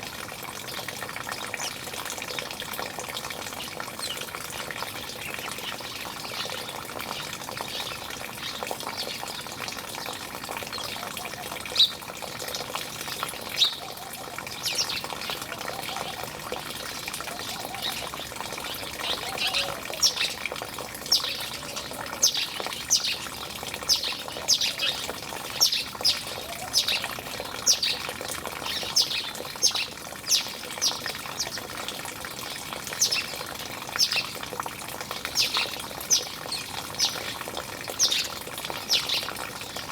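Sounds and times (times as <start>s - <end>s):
running water: 0.0s - 39.9s
birds squawking: 13.6s - 20.4s, 21.1s - 28.0s.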